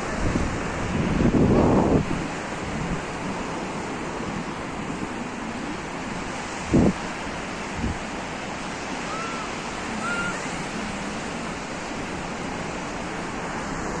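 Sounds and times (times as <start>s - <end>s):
waves breaking on beach: 0.0s - 14.0s
faint high calls: 8.9s - 11.2s.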